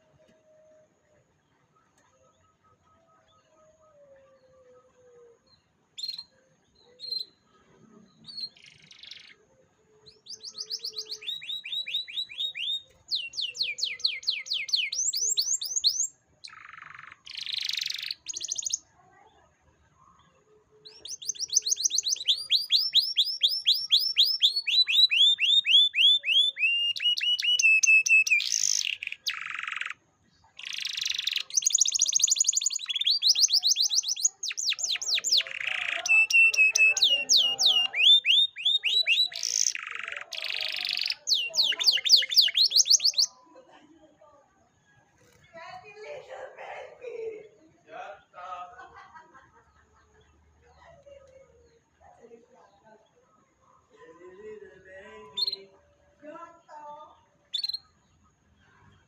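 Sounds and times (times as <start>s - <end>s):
canary singing: 4.6s - 7.5s, 8.1s - 18.9s, 20.8s - 43.4s, 54.4s - 58.4s.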